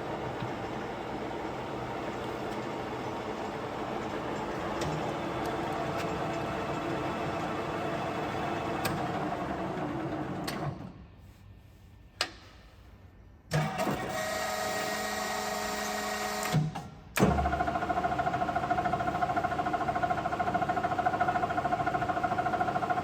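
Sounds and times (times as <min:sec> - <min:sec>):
lathe running: 0:00.0 - 0:10.4.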